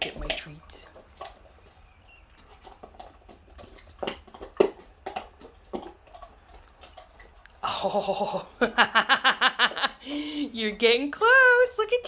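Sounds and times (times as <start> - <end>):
dogs chewing plastic containers: 0.0 - 12.0.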